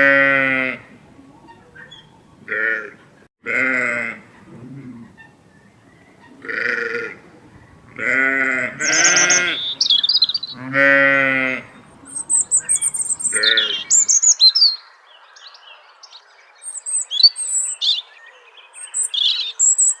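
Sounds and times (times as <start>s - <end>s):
birds chirping: 0.9s - 20.0s
sheep bleating: 2.5s - 4.9s, 6.4s - 7.2s, 7.9s - 9.8s, 10.4s - 11.7s, 13.2s - 13.9s.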